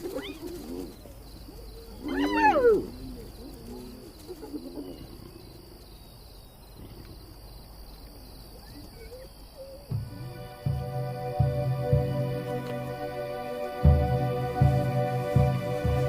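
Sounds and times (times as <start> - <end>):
hyena yelps: 0.0 - 5.3, 8.6 - 9.9
hyenas calling: 0.0 - 7.4, 8.4 - 10.1
crickets trilling: 0.0 - 16.0.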